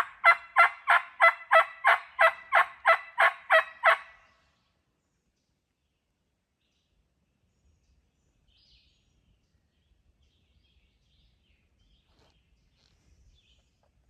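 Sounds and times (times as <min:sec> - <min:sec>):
low rumble of wind: 0:02.1 - 0:14.0
songbird chirps: 0:03.1 - 0:14.0.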